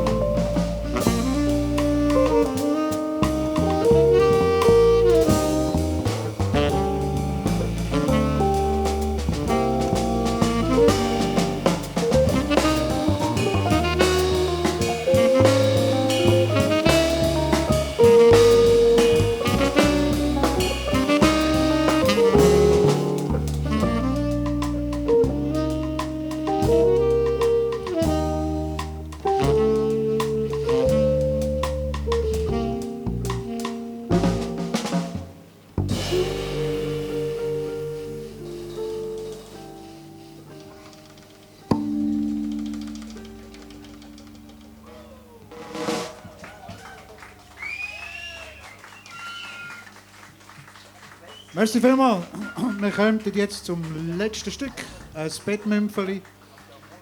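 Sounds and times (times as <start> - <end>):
saxophone melody: 0.0 - 34.9, 35.9 - 45.9
drum kit: 0.0 - 47.4
bass: 0.0 - 57.0.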